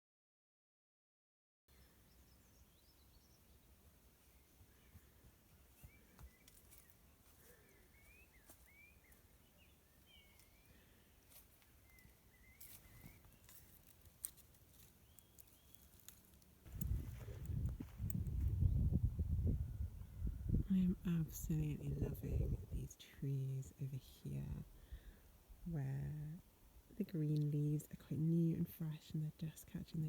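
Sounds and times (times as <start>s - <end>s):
bird chirping: 1.7s - 13.7s, 14.8s - 16.1s
small clicks: 11.9s - 18.3s
low rumble: 16.7s - 24.8s.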